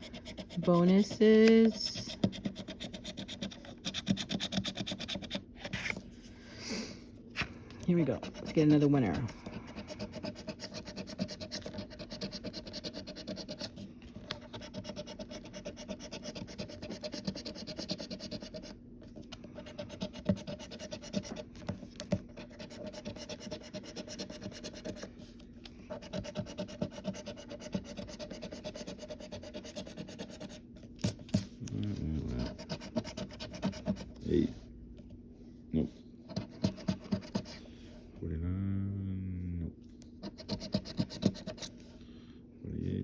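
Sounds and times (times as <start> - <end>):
scratching lottery ticket: 0.0 - 6.0, 7.9 - 30.6, 31.7 - 34.5, 36.3 - 37.6, 40.2 - 41.7.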